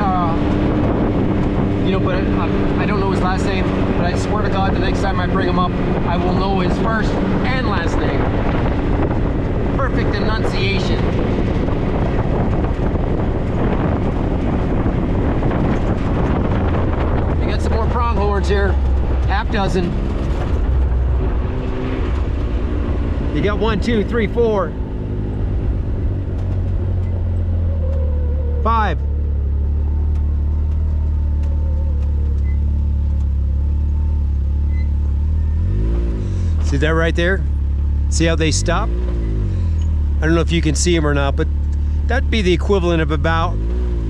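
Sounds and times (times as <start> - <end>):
wind buffeting microphone: 0.0 - 32.6
road rumble: 0.0 - 44.0
vehicle engine drone: 0.0 - 44.0.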